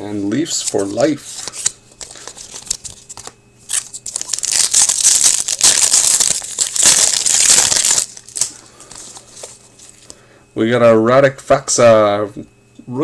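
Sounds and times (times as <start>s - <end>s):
foil wrapper tearing and crinkling: 0.5s - 10.1s
cards clicking: 0.6s - 10.2s.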